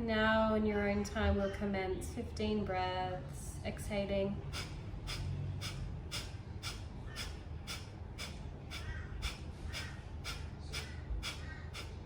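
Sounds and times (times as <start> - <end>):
sharp nasal exhalations: 4.4 - 12.0.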